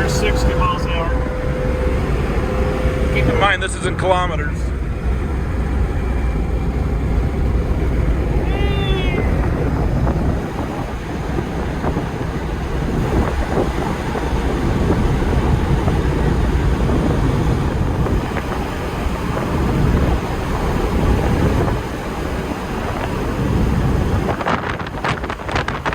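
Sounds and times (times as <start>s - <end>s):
car cabin road rumble: 0.0s - 25.9s.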